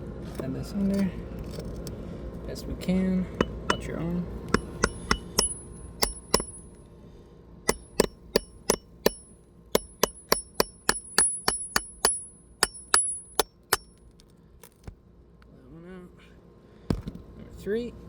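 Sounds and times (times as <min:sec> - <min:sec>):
hammer striking steel bar: 0:03.4 - 0:06.7, 0:07.7 - 0:09.2, 0:09.8 - 0:13.9.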